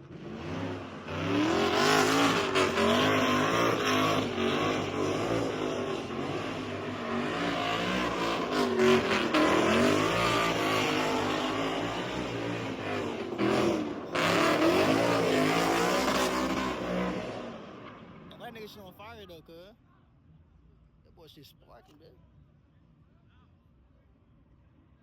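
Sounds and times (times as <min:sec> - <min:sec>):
car engine revving hard: 0:00.0 - 0:18.3.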